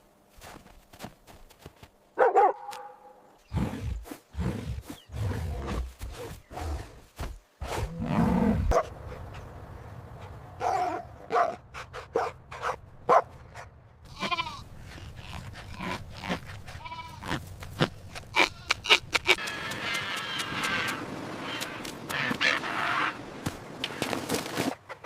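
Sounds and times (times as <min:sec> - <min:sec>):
sheep or goats bleating: 0:14.0 - 0:17.4.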